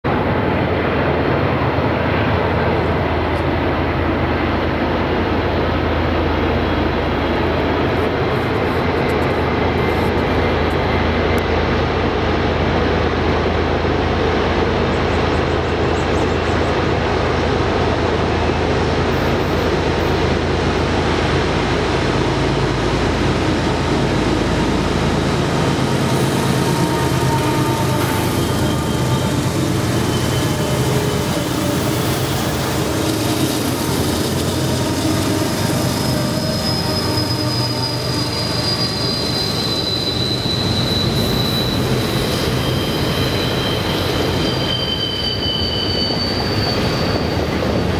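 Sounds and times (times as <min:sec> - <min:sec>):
diesel locomotive engines: 0:00.0 - 0:47.9
steel wheels squealing: 0:25.8 - 0:47.9.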